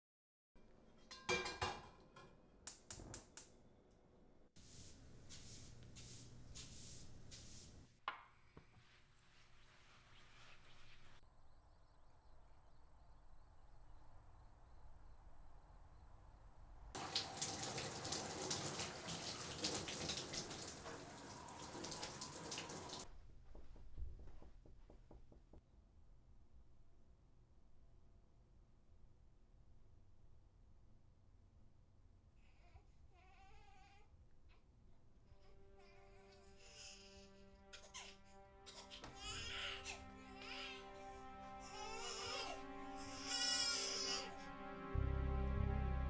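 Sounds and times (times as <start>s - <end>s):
metal pan clattering on stove: 1.1s - 2.3s
shower water spraying: 4.6s - 7.9s, 17.0s - 23.1s.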